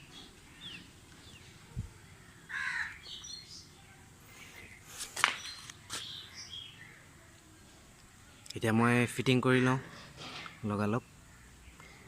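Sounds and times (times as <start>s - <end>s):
small birds chirping: 0.0s - 12.0s
crow cawing: 2.4s - 3.0s.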